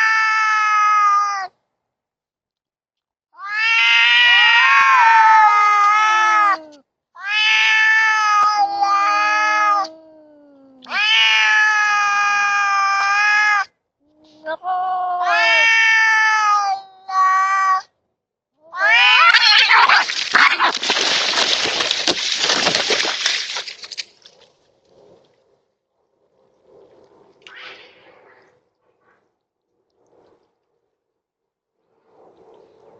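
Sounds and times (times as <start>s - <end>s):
cats screeching and hissing: 0.0s - 1.5s, 3.4s - 13.7s, 14.4s - 17.9s, 18.7s - 22.2s
cats yowling: 0.0s - 1.5s, 3.4s - 13.7s, 14.4s - 17.9s, 18.7s - 21.7s.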